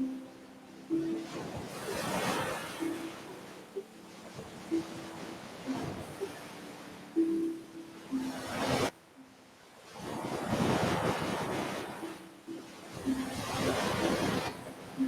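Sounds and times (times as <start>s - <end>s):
faint low steady tones: 0.0s - 9.8s
waves breaking on shore: 0.0s - 15.0s.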